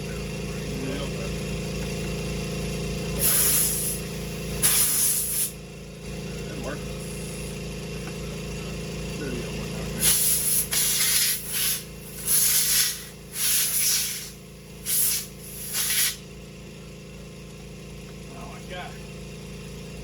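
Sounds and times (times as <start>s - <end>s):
steady low hum: 0.0s - 20.0s
compressed air blow gun hissing: 3.2s - 5.6s, 10.0s - 16.2s.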